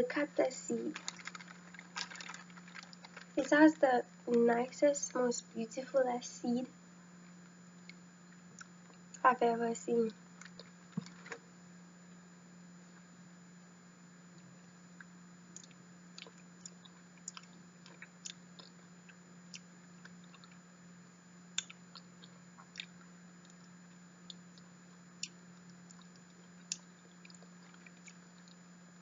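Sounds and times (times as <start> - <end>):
steady low hum: 0.0 - 29.0
mouth chewing clicks and smacks: 15.0 - 20.6, 21.6 - 23.6, 24.2 - 28.7.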